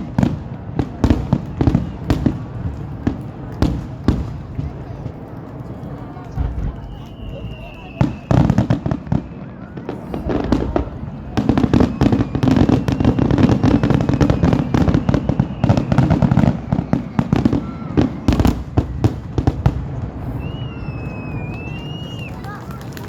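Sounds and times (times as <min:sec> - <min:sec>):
firework booms: 0:00.0 - 0:22.0
fireworks crackling bursts: 0:00.0 - 0:23.0
thin firework whistle: 0:01.0 - 0:02.8, 0:06.4 - 0:19.2, 0:20.2 - 0:22.6.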